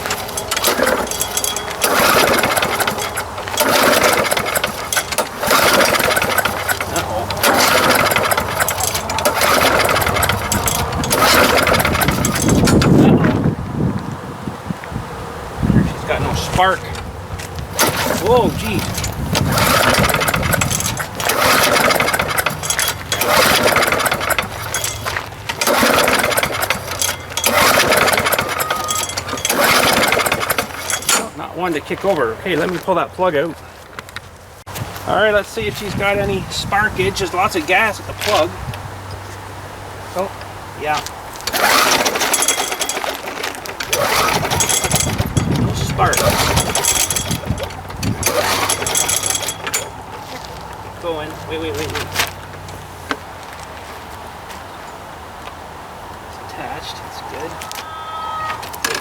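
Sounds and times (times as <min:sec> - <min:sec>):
lawn mower engine chugging: 0:00.0 - 0:13.6, 0:15.7 - 0:33.4, 0:40.8 - 0:52.4.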